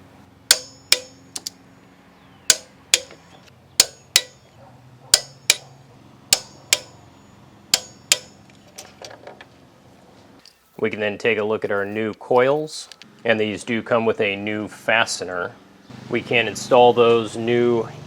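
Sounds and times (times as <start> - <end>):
ratchet wrench clicking: 0.5 - 1.5, 2.5 - 3.1, 3.8 - 4.4, 5.2 - 5.6, 6.4 - 6.9, 7.8 - 8.3.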